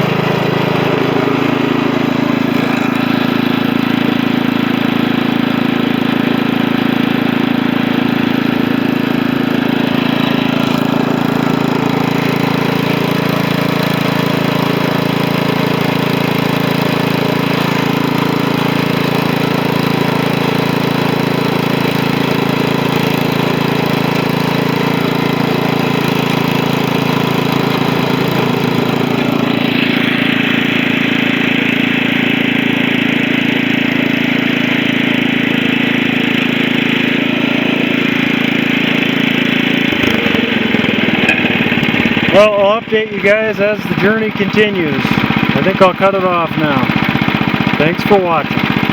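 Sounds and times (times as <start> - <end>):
garden tractor engine running: 0.0 - 48.9.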